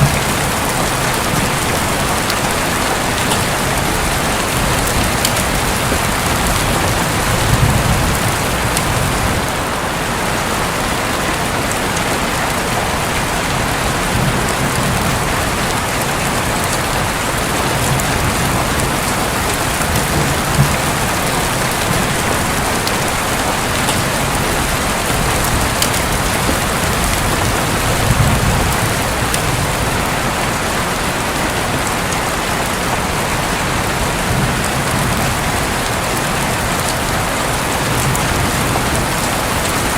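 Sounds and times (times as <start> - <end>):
distant thunder rumbles: 0.0 - 10.0, 12.9 - 31.2
rain falling on a roof: 0.0 - 39.9.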